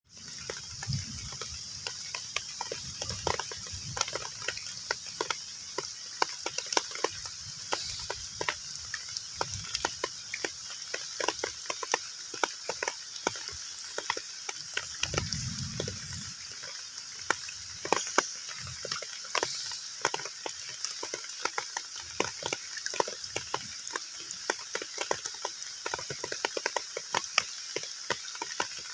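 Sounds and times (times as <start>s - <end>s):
heavy rain on a pond: 0.1s - 28.9s.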